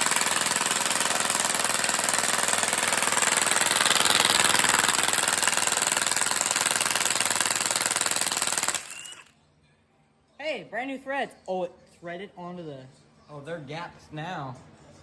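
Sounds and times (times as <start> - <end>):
impact wrench rattling: 0.0 - 9.3.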